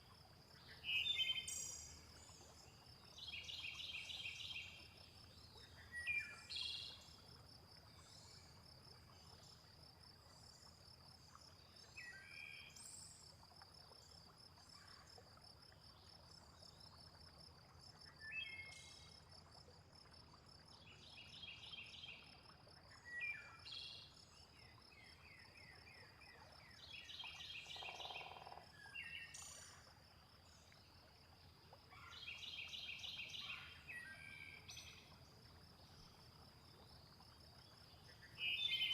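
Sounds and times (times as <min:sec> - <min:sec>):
water-like noise: 0:00.0 - 0:38.9
bird calls and chirps: 0:38.3 - 0:38.9.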